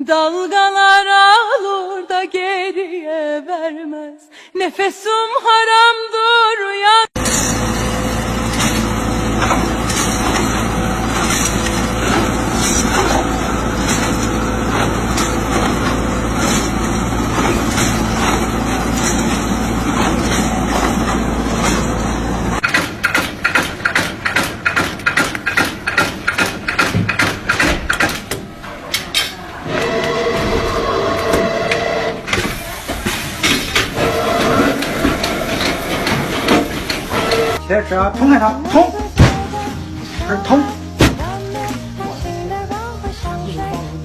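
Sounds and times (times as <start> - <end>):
machine knocking rhythmically: 7.2 - 28.6, 33.3 - 37.6
heavy machinery humming: 7.2 - 37.7.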